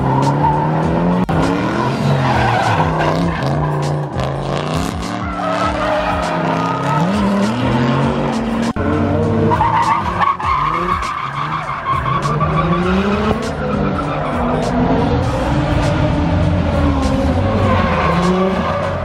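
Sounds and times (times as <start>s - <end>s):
car engines revving: 0.0s - 19.0s
tyres squealing: 1.8s - 15.9s.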